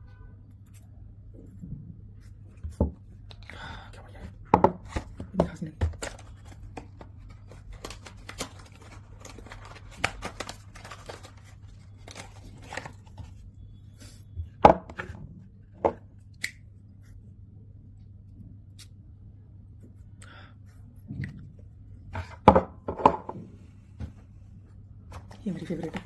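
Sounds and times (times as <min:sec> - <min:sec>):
packaging rustling and clicking: 0:05.9 - 0:13.2.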